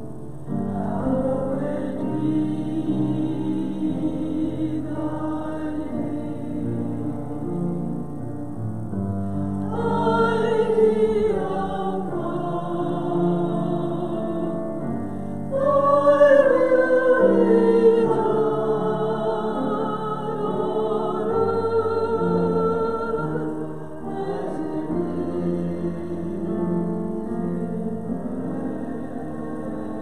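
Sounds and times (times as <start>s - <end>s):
voices singing sacred music: 0.0s - 8.3s, 8.9s - 30.0s.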